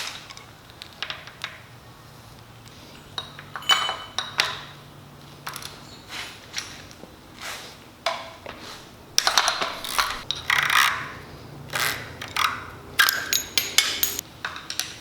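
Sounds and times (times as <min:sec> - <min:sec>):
metal tools clinking and scraping: 0:02.8 - 0:04.8, 0:12.3 - 0:14.8.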